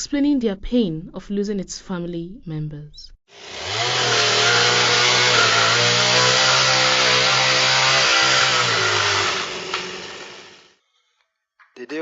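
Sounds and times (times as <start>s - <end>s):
chainsaw engine running: 3.3s - 10.7s.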